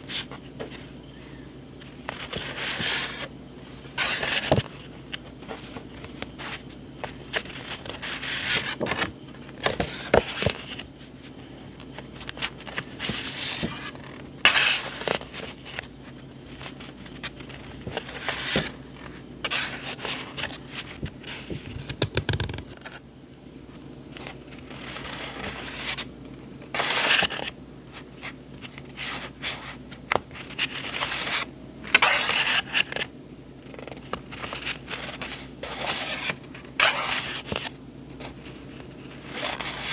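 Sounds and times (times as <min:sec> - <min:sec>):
paper rustling and scraping: 0:00.0 - 0:23.0, 0:24.2 - 0:26.1, 0:26.7 - 0:39.9
small taps and clicks: 0:21.8 - 0:22.8.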